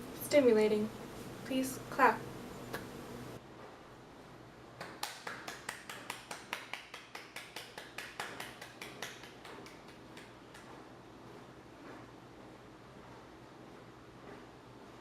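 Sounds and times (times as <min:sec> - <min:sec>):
hand clapping: 0:04.8 - 0:10.8.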